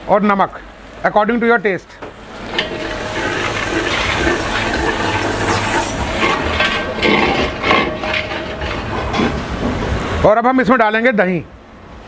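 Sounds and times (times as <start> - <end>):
spatula scraping a pot: 2.2 - 9.9
masala sizzling in a pot: 2.2 - 10.1.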